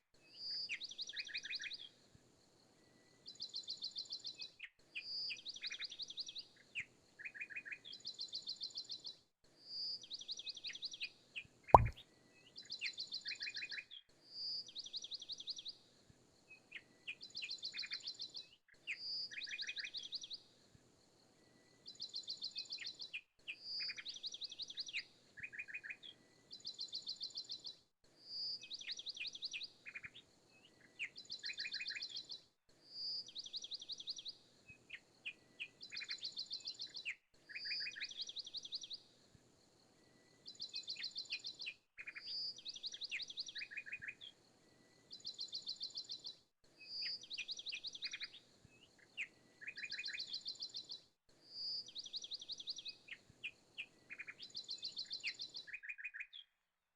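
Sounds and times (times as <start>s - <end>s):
songbirds chirping and trilling: 40.4s - 56.5s.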